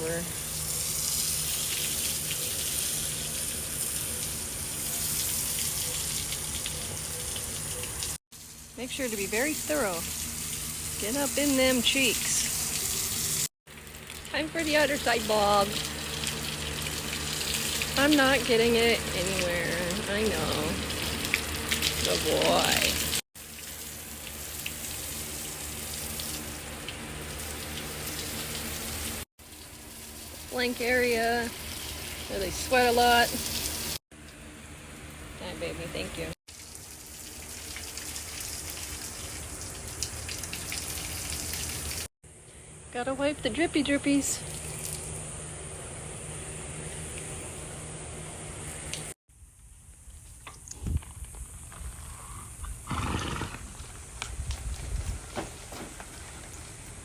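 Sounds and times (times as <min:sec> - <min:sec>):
garden hose spraying water: 0:00.0 - 0:57.0.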